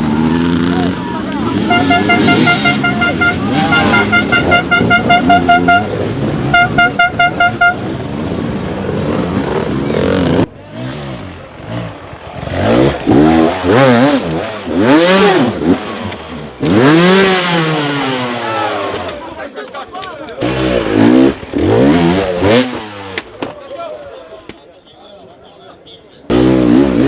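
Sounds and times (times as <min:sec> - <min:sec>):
dirt bike engine revving: 0:00.0 - 0:19.3, 0:20.4 - 0:23.3, 0:26.3 - 0:27.0
horn tooting in quick pulses: 0:01.5 - 0:08.0.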